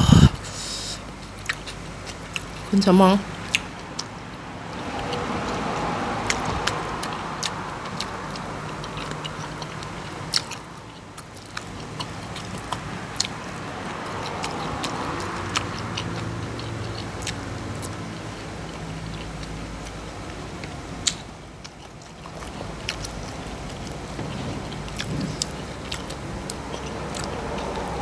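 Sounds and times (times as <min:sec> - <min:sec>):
person chewing food: 0:00.0 - 0:02.7, 0:03.3 - 0:28.0
steady low hum: 0:00.0 - 0:05.4.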